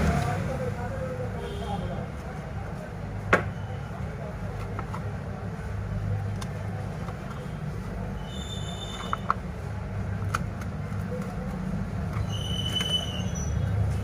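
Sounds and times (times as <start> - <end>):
short high squeaks: 12.2 - 13.7.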